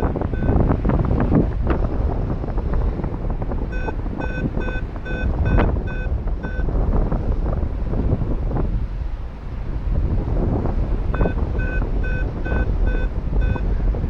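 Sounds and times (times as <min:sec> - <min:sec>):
wind buffeting microphone: 0:00.0 - 0:14.0
rapid short high beeps: 0:03.8 - 0:06.6, 0:11.2 - 0:13.6.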